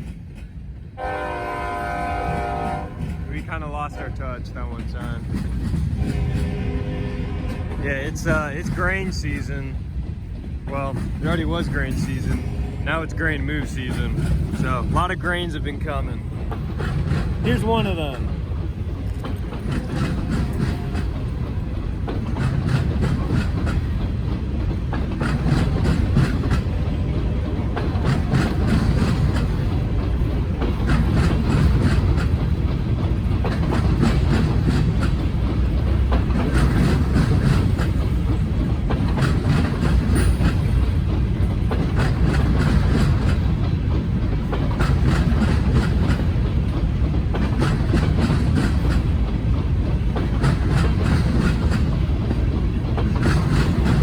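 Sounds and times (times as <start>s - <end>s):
freight train wheels rumbling: 0.0s - 54.0s
wheels clicking over rail joints: 0.0s - 54.0s.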